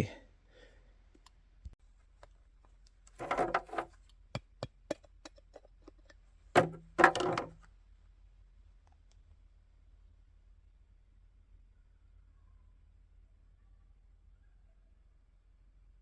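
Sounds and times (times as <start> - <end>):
handling clicks and knocks: 3.1 - 7.6
louder clunks: 6.6 - 7.5.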